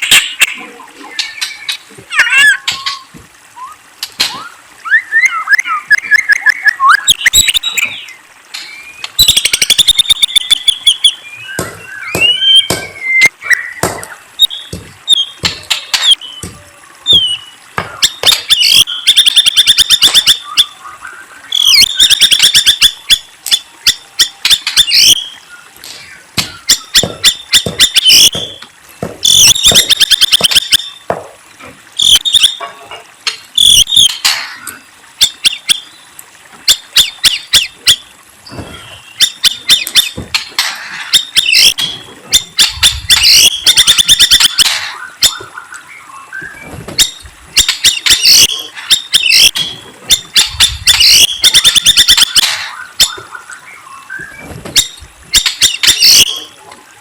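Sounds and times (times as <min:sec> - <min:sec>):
songbird singing rapid chirps: 0:00.0 - 0:31.1, 0:41.1 - 0:56.6.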